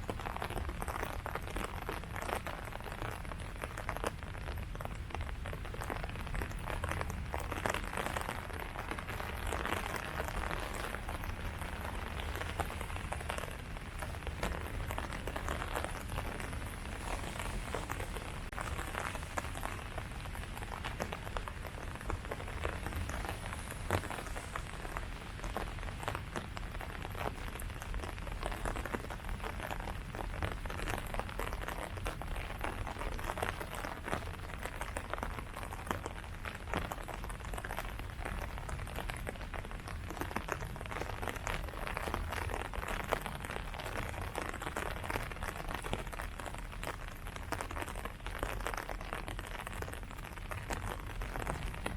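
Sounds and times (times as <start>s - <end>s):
rain falling on leaves: 0.0s - 51.9s
low rumble: 10.8s - 27.1s.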